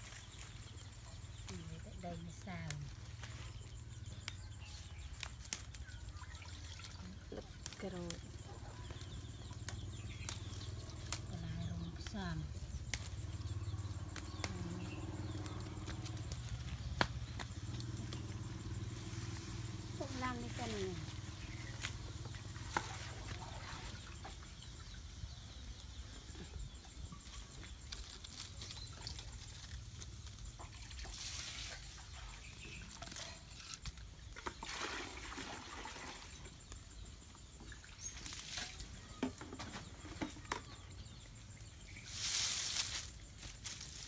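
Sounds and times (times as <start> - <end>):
fire crackles: 0.0 - 34.6.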